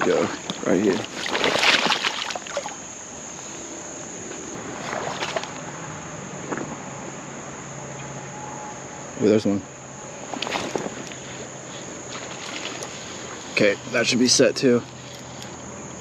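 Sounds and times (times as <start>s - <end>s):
water splashing: 0.0s - 3.8s, 4.4s - 6.8s, 10.2s - 14.4s
creek water flowing: 0.0s - 8.3s, 8.9s - 15.8s
high insect drone: 0.0s - 16.0s.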